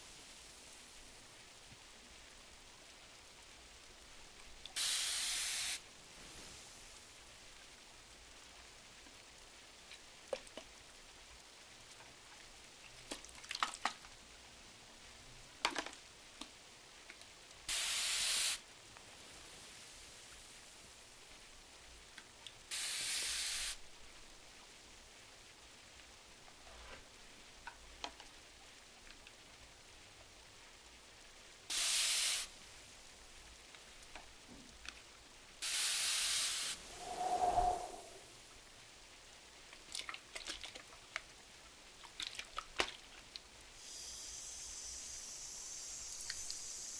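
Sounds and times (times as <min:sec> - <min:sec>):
rain on a window: 0:00.0 - 0:37.0, 0:37.8 - 0:46.9
fire crackles: 0:05.8 - 0:10.2, 0:18.7 - 0:22.7, 0:32.4 - 0:38.6.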